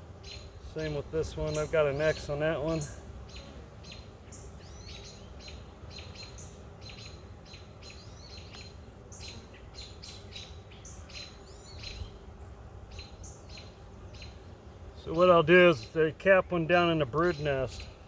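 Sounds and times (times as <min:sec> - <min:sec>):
small songbirds chirping: 0:00.0 - 0:18.0.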